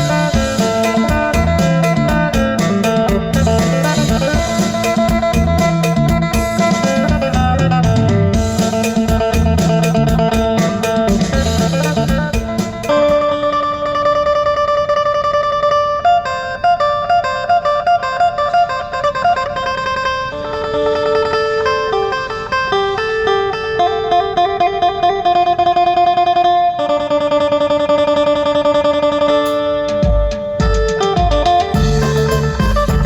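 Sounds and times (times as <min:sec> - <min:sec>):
heavy low drum hits: 0:00.0 - 0:13.3, 0:30.0 - 0:33.0
amplified plucked string melody: 0:00.0 - 0:33.0.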